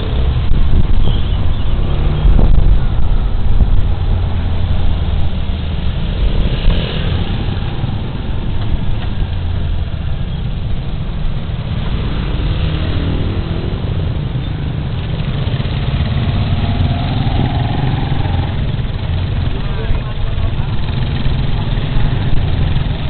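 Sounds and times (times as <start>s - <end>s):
road noise: 0.0s - 23.0s
scooter engine rumbling: 13.8s - 23.0s.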